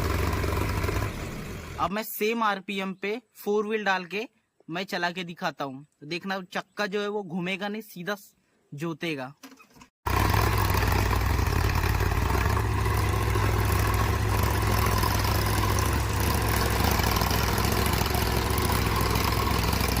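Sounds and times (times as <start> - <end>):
tractor diesel engine running: 0.0 - 1.9, 10.1 - 20.0.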